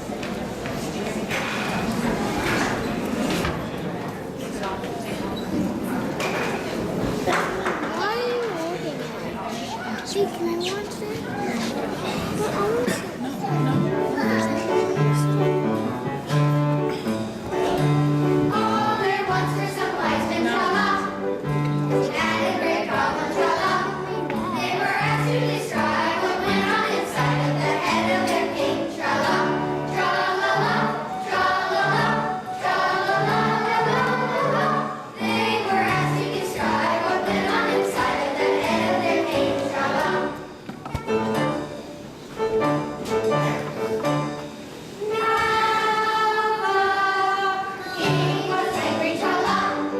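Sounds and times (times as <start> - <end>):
choir singing: 17.8 - 40.5, 45.0 - 49.9.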